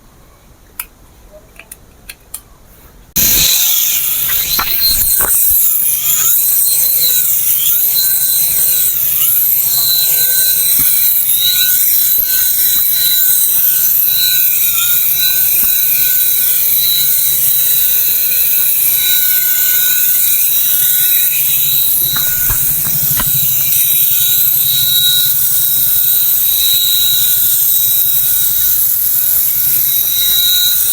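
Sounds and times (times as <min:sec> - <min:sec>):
toy helicopter whirring: 0:03.2 - 0:30.9.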